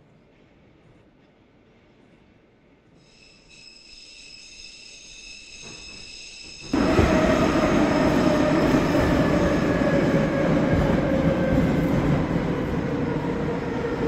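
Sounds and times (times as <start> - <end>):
metro train rumbling in tunnel: 0.0 - 14.0
train whine falling in pitch: 3.3 - 9.5.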